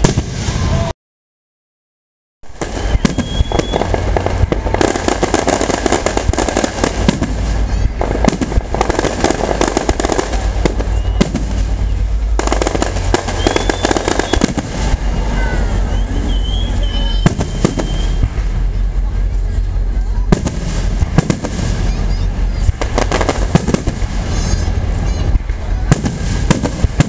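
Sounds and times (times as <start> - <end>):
fireworks bangs and crackling: 0.0 - 0.9, 2.4 - 27.0
fireworks whistles: 2.5 - 27.0
low rumble: 2.5 - 27.0.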